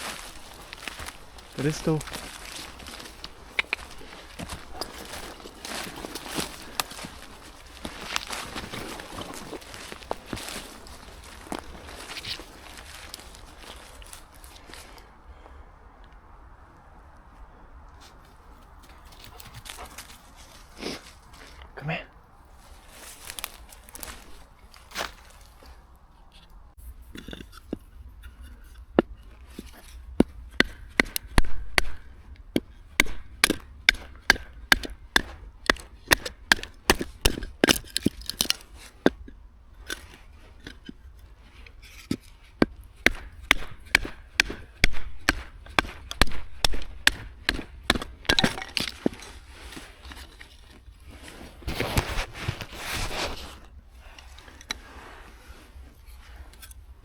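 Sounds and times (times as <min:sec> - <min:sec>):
rustling: 0:00.0 - 0:15.2, 0:17.9 - 0:21.8, 0:22.4 - 0:57.0
sharp knocks: 0:30.2 - 0:38.5, 0:42.6 - 0:49.2.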